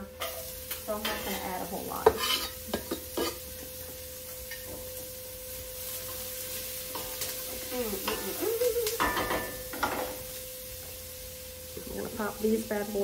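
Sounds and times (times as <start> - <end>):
onions sizzling in a pot: 0.0 - 13.0.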